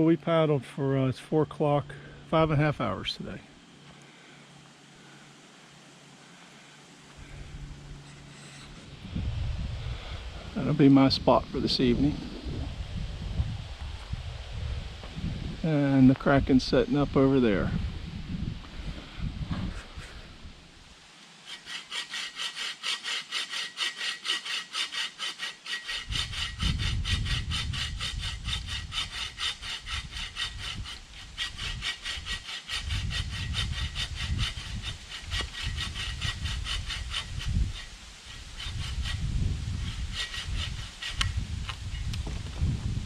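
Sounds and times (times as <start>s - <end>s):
hand saw cutting wood: 8.0s - 8.9s, 21.4s - 42.1s.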